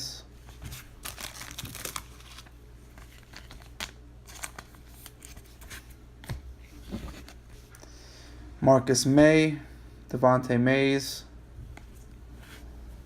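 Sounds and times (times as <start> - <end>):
cards being flipped through: 0.6 - 7.4.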